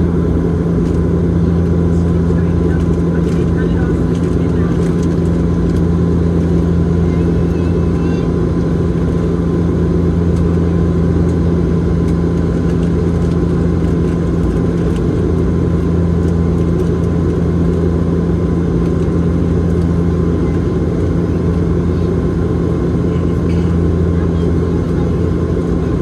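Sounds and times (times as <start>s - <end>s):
turboprop engine drone in cabin: 0.0s - 26.0s.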